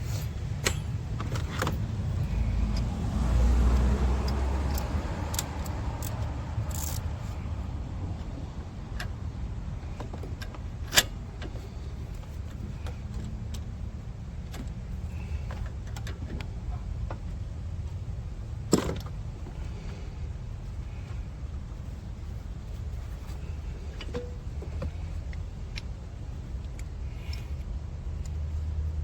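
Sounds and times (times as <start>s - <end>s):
steady low rumble: 0.0s - 29.0s
tools clicking and clinking: 0.5s - 3.0s, 3.7s - 7.2s.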